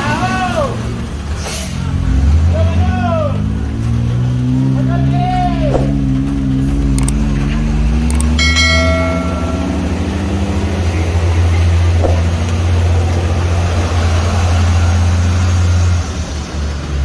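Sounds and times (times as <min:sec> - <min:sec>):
road noise: 0:00.0 - 0:17.0
vehicle engine drone: 0:00.0 - 0:17.0
ringing tone: 0:08.2 - 0:12.4.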